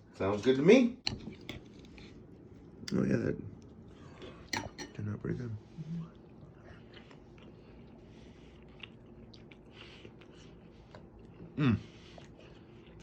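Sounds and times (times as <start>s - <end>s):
person chewing food: 6.1s - 13.0s.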